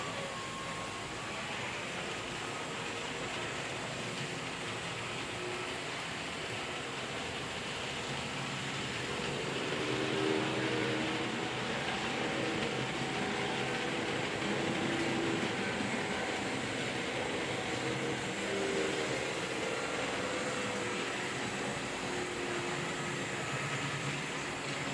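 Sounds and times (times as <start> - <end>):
model train wheels rumbling: 0.0 - 24.9
small electric motors humming: 8.3 - 24.9.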